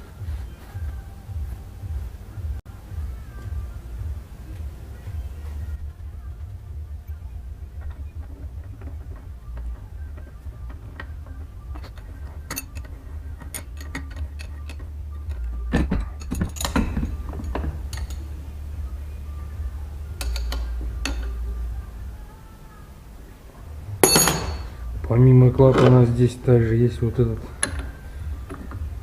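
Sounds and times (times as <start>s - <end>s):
faint background music: 0.0s - 29.0s
steady low hum: 0.0s - 29.0s
metal parts clicking and knocking: 7.0s - 18.3s, 20.2s - 21.4s, 27.4s - 29.0s.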